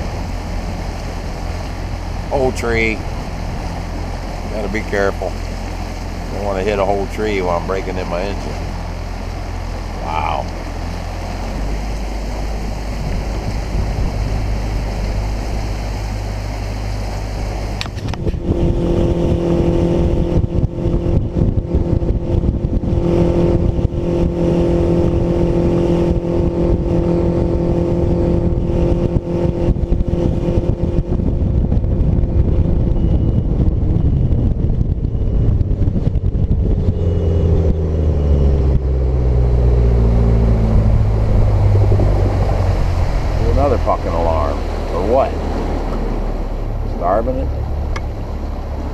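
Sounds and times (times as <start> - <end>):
outboard boat engine running: 0.0 - 48.9
faint high warning beep: 32.4 - 35.6.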